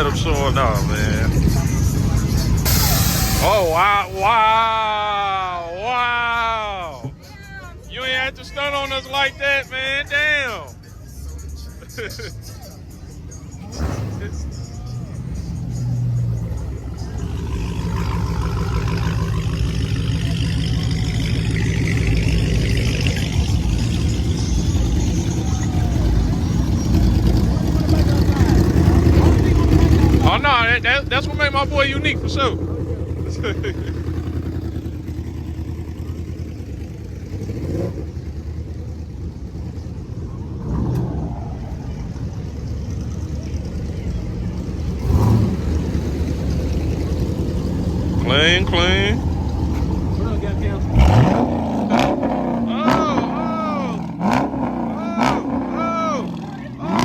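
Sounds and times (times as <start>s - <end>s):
car engine revving: 0.0s - 5.6s, 11.2s - 57.0s
car engines idling: 0.0s - 57.0s
heavy low rumble: 12.8s - 56.4s.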